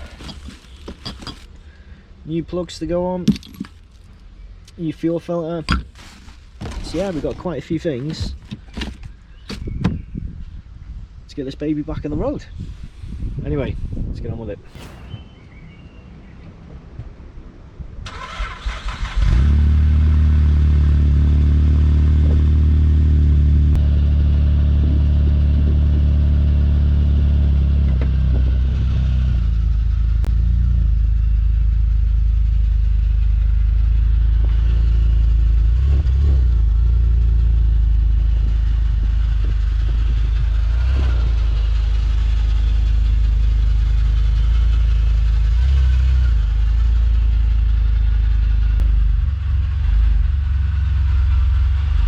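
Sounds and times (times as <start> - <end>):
car engine starting and idling: 15.1 - 25.6, 29.4 - 52.0.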